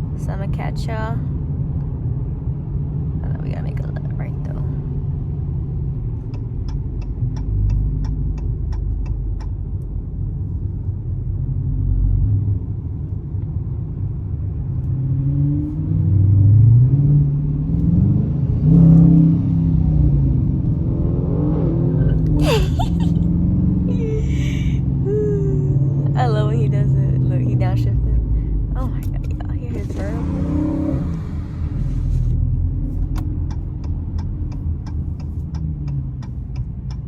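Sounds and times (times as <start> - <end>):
car engine and road rumble: 0.0 - 37.0
turn signal ticking: 6.2 - 10.0, 32.6 - 37.0
car engine revving: 14.8 - 37.0.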